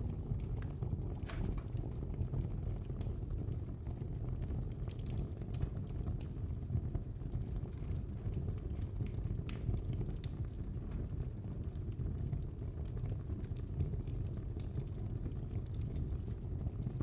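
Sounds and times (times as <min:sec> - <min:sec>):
burning logs crackling and popping: 0:00.0 - 0:17.0
low rumble of flames: 0:00.0 - 0:17.0.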